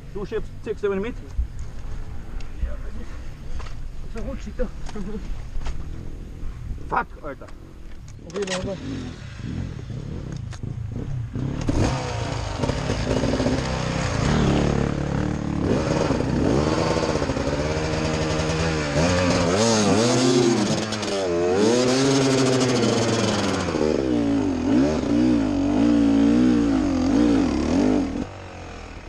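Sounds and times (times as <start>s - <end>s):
dirt bike engine revving: 8.3s - 29.0s.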